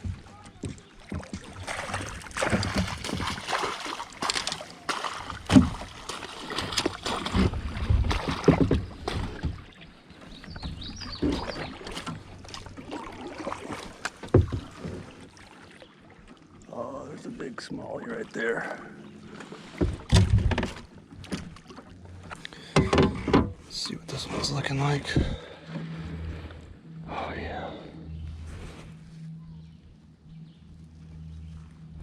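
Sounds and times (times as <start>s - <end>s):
knocks and clatter on plastic kayak: 0.0s - 15.4s, 19.4s - 23.8s
heavy thuds: 25.0s - 27.6s.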